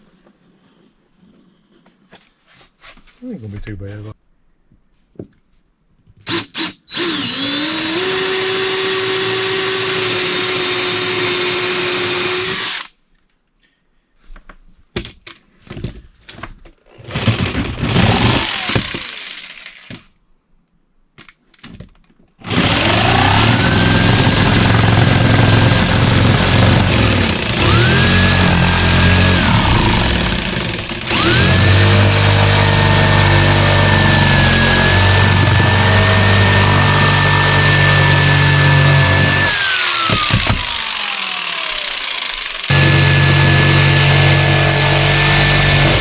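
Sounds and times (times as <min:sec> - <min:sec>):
power tool cutting wood: 0:06.3 - 0:12.9, 0:17.1 - 0:20.0, 0:22.4 - 0:46.0.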